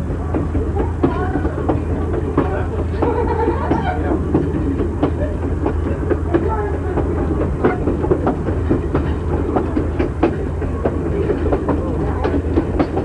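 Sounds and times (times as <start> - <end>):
train wheels rumbling on rails: 0.0 - 13.0
wheels clicking over rail joints: 0.0 - 13.0.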